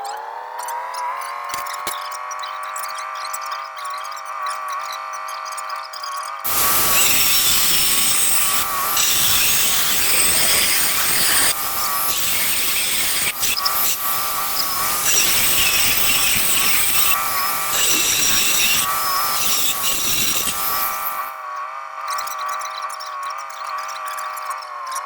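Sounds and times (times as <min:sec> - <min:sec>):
power tool cutting tile: 0:06.4 - 0:21.6.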